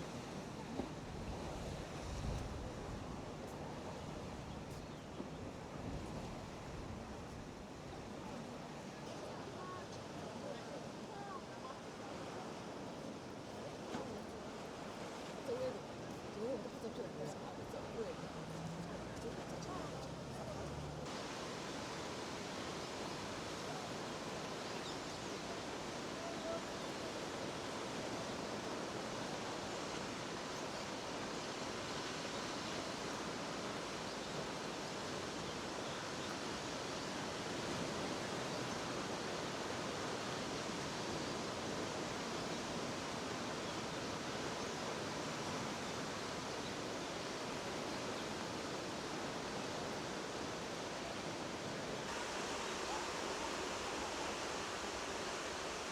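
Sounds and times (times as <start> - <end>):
waterfall rushing: 19.6 - 55.9.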